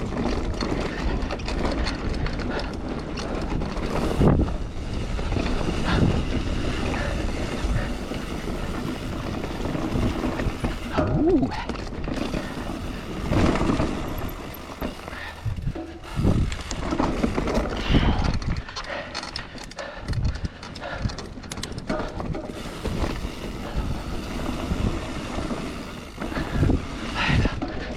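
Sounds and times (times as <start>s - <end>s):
bike rattling over bumps: 0.0s - 27.9s
wind buffeting microphone: 0.0s - 27.9s.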